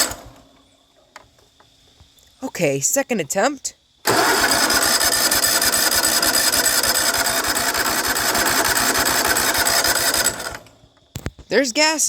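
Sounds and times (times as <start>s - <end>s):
electric starter cranking engine: 0.0s - 0.4s, 4.0s - 10.8s.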